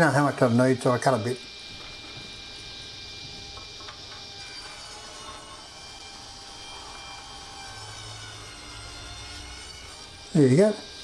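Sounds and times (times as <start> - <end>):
power saw cutting wood: 3.1 - 11.0.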